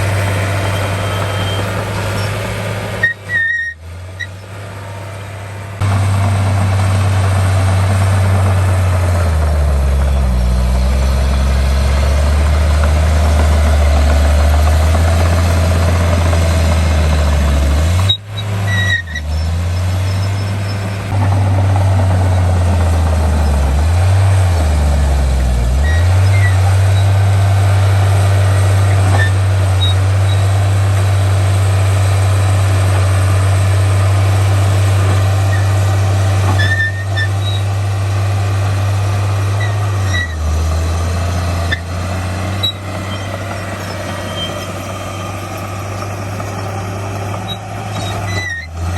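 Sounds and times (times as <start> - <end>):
heavy diesel engine running: 0.0 - 48.9
faint high squeaks: 0.6 - 2.4, 3.0 - 4.4, 36.6 - 37.7, 42.6 - 45.2, 47.4 - 48.8.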